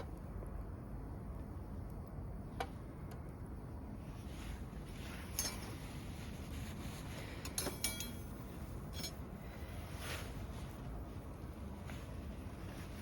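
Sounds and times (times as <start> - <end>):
low steady rumble: 0.0 - 13.0
metal utensils clinking: 5.3 - 5.7, 7.5 - 8.3, 8.9 - 9.2.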